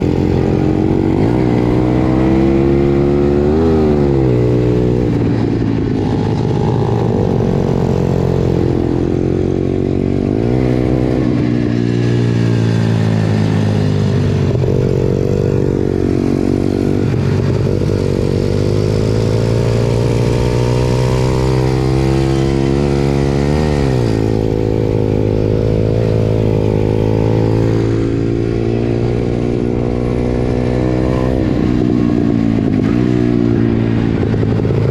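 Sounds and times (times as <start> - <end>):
small motorbike engine revving: 12.0 - 34.9.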